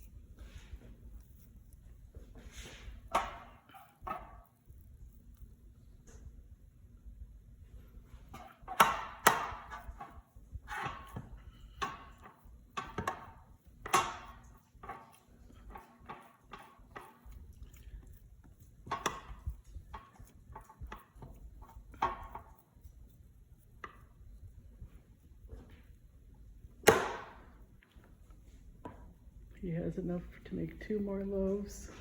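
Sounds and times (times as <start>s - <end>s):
dough slapping on countertop: 8.3s - 17.2s, 26.8s - 27.6s.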